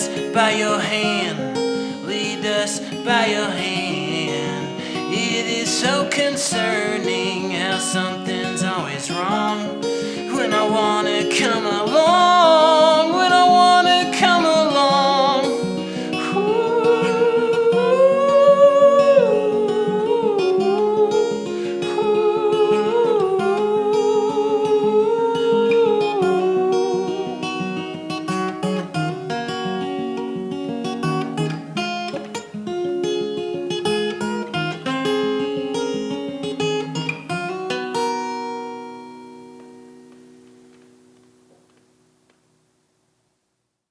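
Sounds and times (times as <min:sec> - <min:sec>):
strummed acoustic guitar: 0:00.0 - 0:42.6
person humming a melody: 0:02.1 - 0:27.8.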